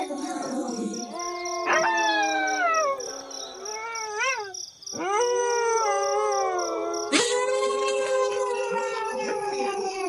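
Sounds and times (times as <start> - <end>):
wolves howling: 0.0 - 7.2.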